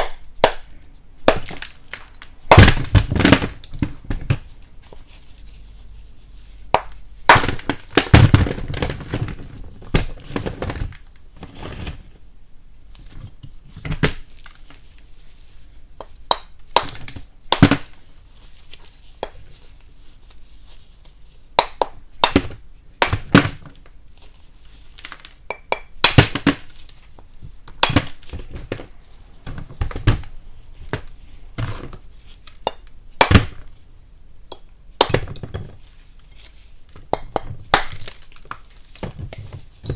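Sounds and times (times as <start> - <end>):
chalk cracking and snapping: 36.2 - 39.0.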